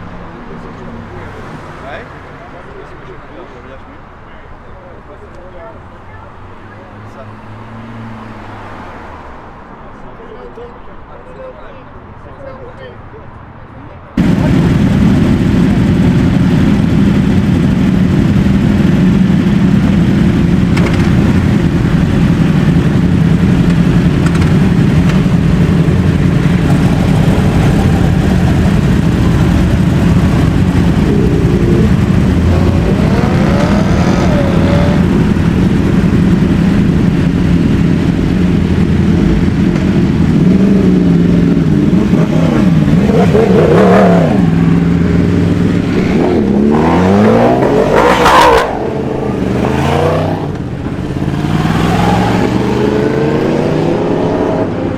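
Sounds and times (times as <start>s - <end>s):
motorcycle engines revving: 14.2s - 54.9s.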